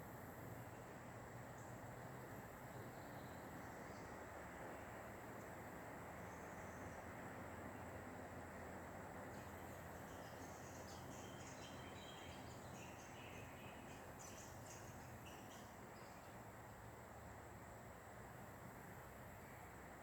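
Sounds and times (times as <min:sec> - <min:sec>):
low background hiss: 0:00.0 - 0:20.0
small birds chirping: 0:09.4 - 0:16.5.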